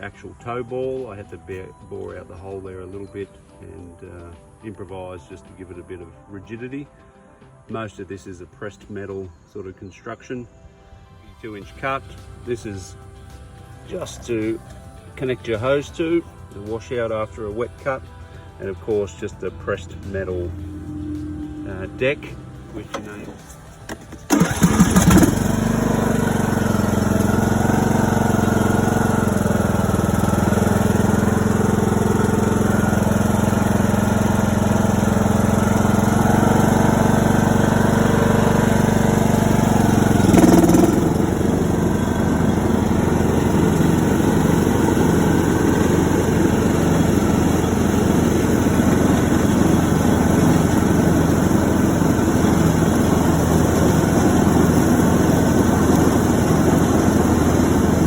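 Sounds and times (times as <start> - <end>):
lawn tractor engine running: 11.7 - 58.0.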